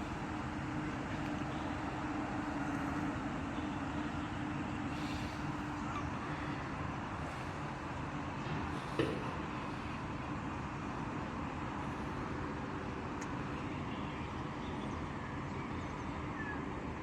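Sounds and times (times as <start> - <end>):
city traffic noise: 0.0 - 17.0
faint high bird calls: 4.9 - 6.7, 14.7 - 16.7.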